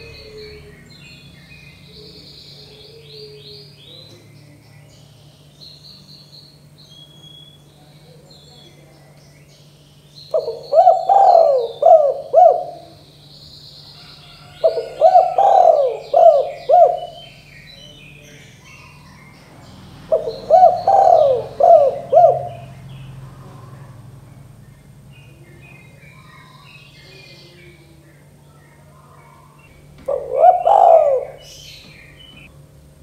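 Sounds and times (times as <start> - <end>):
dove cooing: 0.0 - 4.2, 10.3 - 13.2, 13.9 - 19.4, 20.0 - 24.6, 28.8 - 32.5
faint small birds chirping: 0.0 - 32.6.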